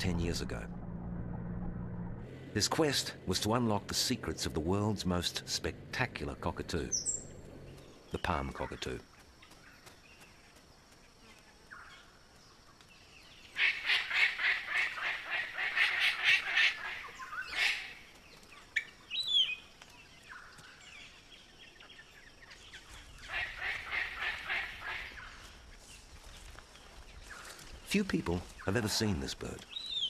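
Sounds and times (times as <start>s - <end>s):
cockatoo harsh calls: 13.5s - 18.0s, 23.2s - 25.5s.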